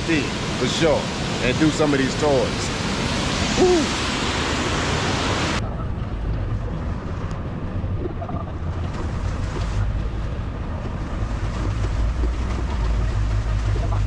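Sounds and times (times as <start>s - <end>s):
waterfall rushing: 0.0s - 5.6s
vehicle engine: 0.0s - 14.0s.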